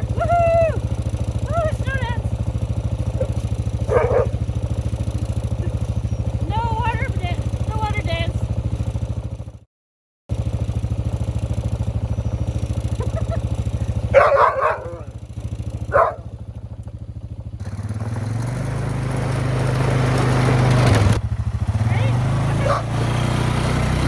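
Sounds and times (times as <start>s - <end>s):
quad engine idling and revving: 0.0s - 9.7s, 10.3s - 24.0s
dog barks: 3.1s - 4.4s, 14.1s - 15.2s, 15.9s - 16.3s, 22.6s - 23.0s.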